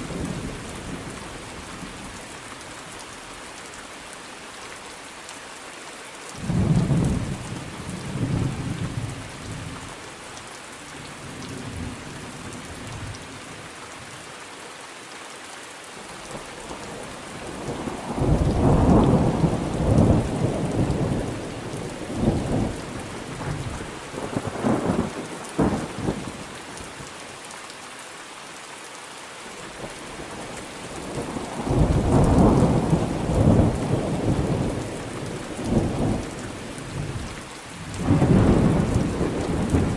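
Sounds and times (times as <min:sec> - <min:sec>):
steady rain: 0:00.0 - 0:39.9
rolling thunder: 0:38.0 - 0:39.9.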